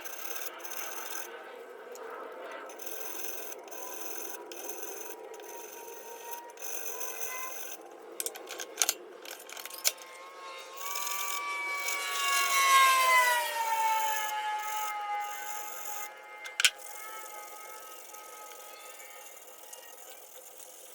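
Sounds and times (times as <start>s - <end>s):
power tool motor whining: 0.0s - 20.9s.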